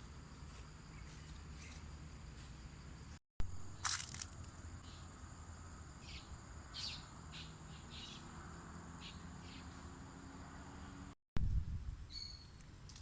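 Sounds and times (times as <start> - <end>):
birds chirping: 6.0 - 8.3.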